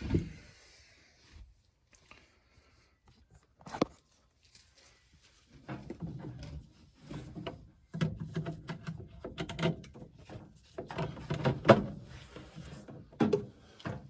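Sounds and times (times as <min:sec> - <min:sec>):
furnace parts knocking and clattering: 0:05.7 - 0:14.0.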